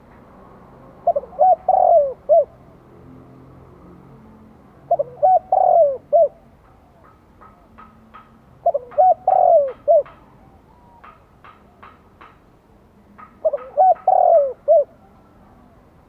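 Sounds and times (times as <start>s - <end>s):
dove cooing: 1.0s - 2.6s, 4.8s - 7.1s, 8.6s - 11.2s, 13.4s - 15.2s.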